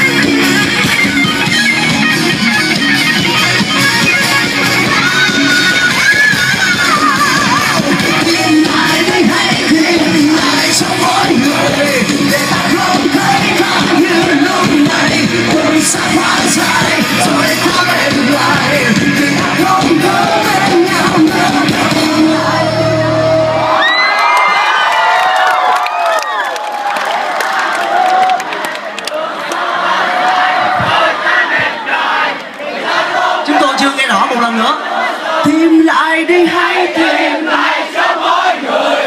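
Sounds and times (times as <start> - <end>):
electric guitar lead bending notes: 0.0 - 23.7
live rock band playing: 0.0 - 23.8
crowd yelling and cheering: 0.0 - 39.0.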